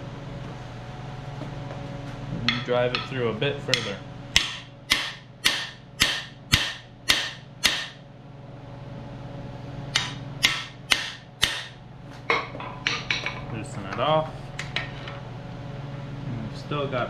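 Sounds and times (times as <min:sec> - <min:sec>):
hammer striking metal bar: 0:02.5 - 0:08.0, 0:09.9 - 0:11.8.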